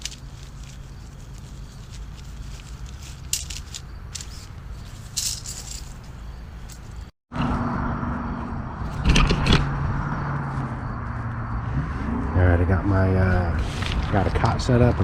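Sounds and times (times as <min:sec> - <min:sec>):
camping gear rattling and clicking: 0:00.0 - 0:07.1, 0:13.5 - 0:14.8.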